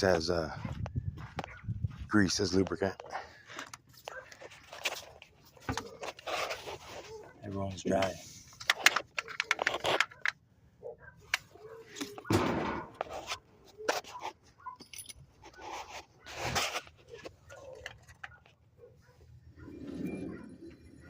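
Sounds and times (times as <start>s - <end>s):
metal parts clinking: 14.8s - 15.3s.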